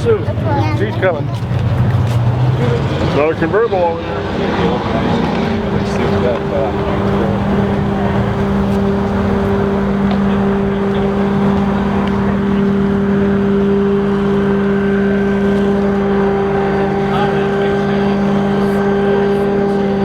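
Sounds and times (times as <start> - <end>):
engine droning steadily: 0.0 - 20.0.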